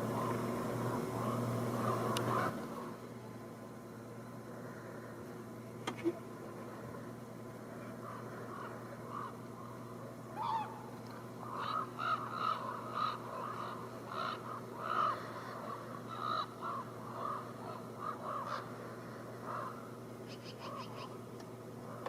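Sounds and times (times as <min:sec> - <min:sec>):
crows cawing: 0:00.1 - 0:03.0, 0:07.9 - 0:21.1.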